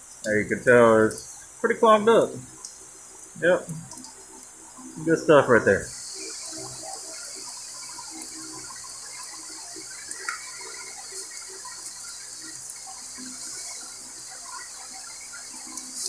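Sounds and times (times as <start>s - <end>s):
water running from a tap: 0.0s - 16.0s.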